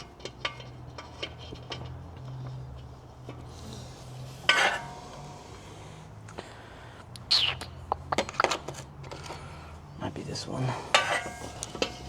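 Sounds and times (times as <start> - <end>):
hands tapping metal car parts: 7.2 - 9.4, 10.9 - 12.0.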